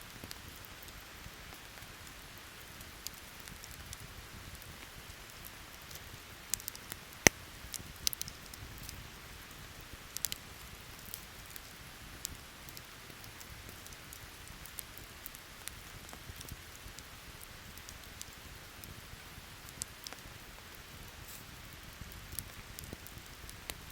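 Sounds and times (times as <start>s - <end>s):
campfire crackling pops: 0.2s - 23.9s.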